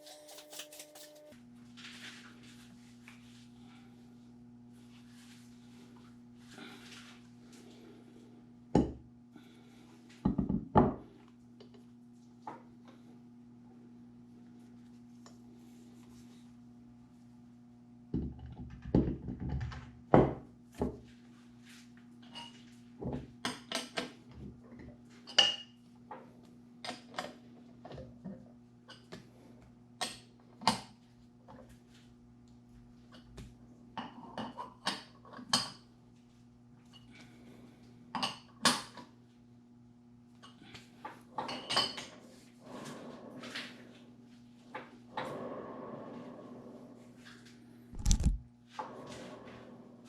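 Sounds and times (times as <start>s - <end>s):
metal tools clinking and clanking: 0.0s - 1.3s
steady low hum: 0.0s - 18.2s.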